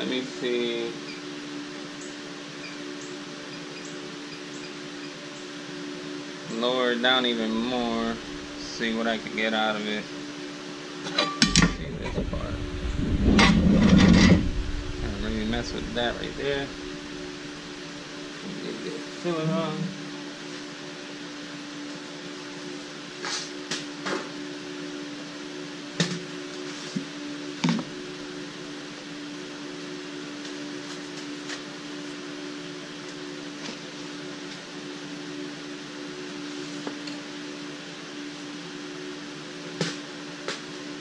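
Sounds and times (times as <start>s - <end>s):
welding arc buzzing: 7.3s - 9.5s, 11.6s - 18.5s.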